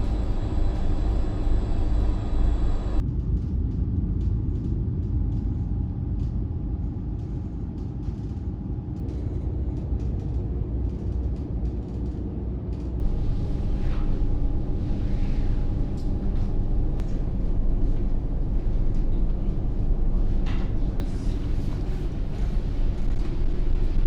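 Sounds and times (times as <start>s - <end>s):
ship engines rumbling: 0.0s - 3.0s, 13.0s - 24.0s.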